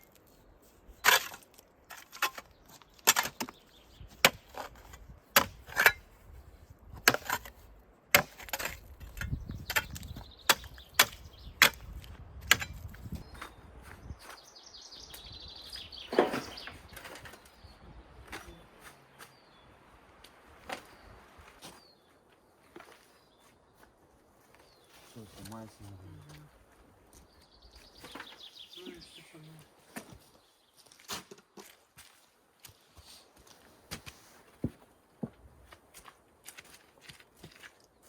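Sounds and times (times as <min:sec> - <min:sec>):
wood being chopped: 0:05.4 - 0:06.0, 0:08.2 - 0:13.2
faint high bird chirp: 0:27.2 - 0:29.7.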